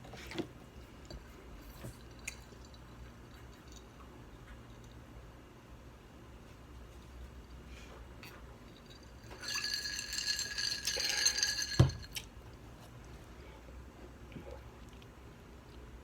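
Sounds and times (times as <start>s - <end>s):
clinking and rattling: 8.7s - 12.2s.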